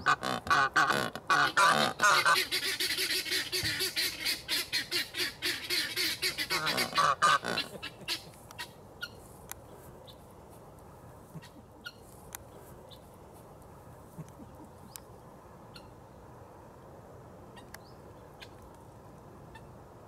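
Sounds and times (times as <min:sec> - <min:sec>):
goose honking: 0:00.0 - 0:08.7.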